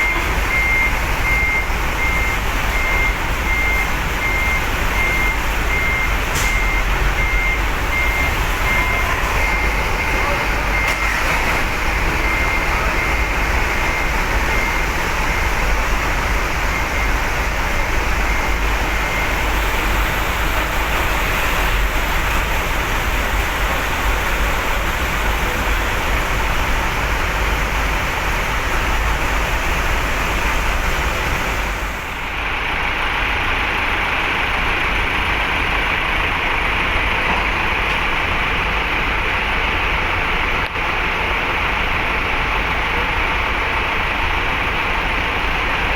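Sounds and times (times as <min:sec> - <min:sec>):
faint repeating beep: 0:00.0 - 0:11.0
heavy truck engines rumbling: 0:00.0 - 0:45.9.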